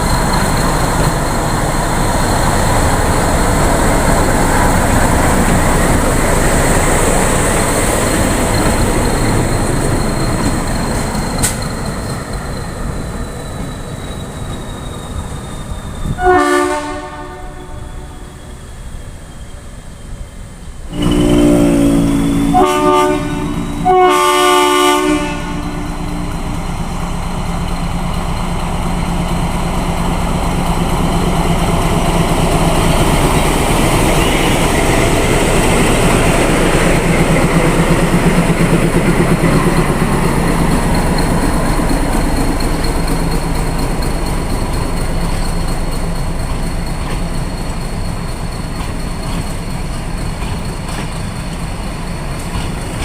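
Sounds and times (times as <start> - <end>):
wheels clattering on rails: 0.0 - 13.8, 26.3 - 53.0
train rumble: 0.0 - 53.0
train horn blasts: 16.2 - 18.2, 20.9 - 26.1.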